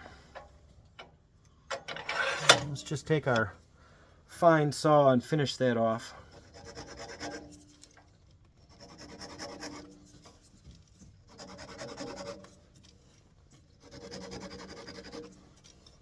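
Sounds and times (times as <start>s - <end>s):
hand saw cutting wood: 2.0s - 2.8s, 6.4s - 7.7s, 8.6s - 10.4s, 11.2s - 12.8s, 13.7s - 15.9s.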